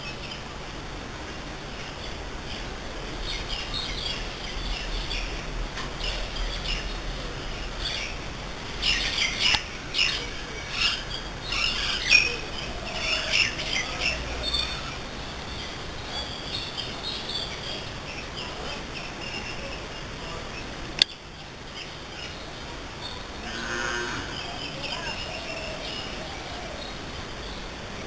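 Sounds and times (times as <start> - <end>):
birds chirping: 1.6 - 28.0.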